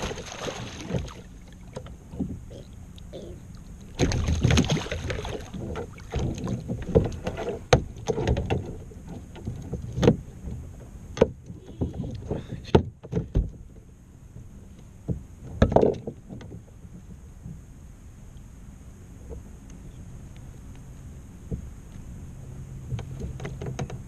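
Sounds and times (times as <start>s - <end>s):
rustling or splashing: 0.0s - 2.4s, 3.5s - 10.9s
gear knocking against kayak hull: 4.0s - 13.7s.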